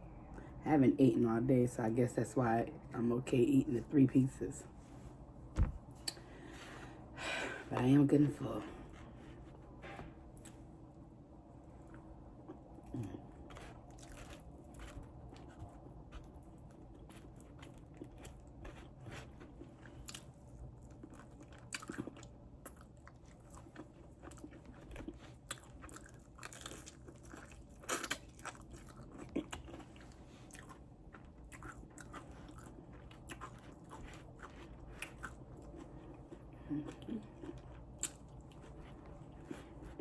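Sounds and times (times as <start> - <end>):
low steady hum: 0.0 - 40.0
chewing crunchy food: 10.2 - 40.0.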